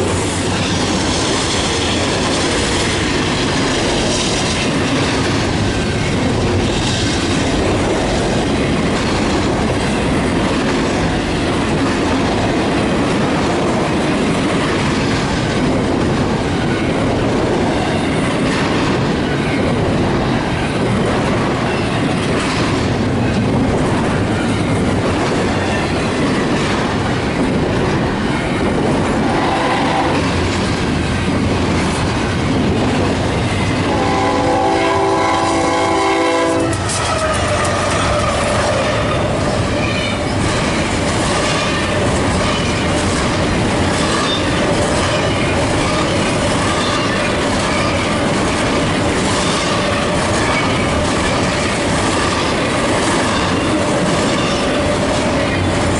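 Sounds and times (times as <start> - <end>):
train cars rumbling past: 0.0 - 55.9
wheels clicking over rail joints: 36.6 - 55.9.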